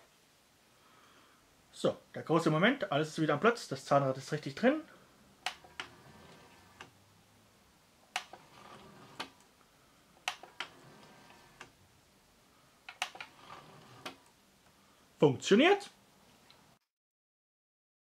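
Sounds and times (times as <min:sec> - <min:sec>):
faint disc drive whir: 0:05.4 - 0:07.0, 0:08.2 - 0:09.5, 0:10.2 - 0:11.8
sharp mechanical clicks: 0:10.2 - 0:10.8, 0:12.9 - 0:14.2.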